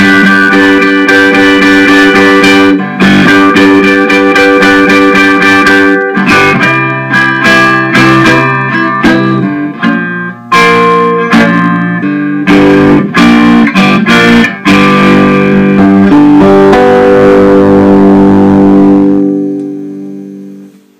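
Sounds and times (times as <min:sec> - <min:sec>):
guitar strummed and picked: 0:00.0 - 0:20.9.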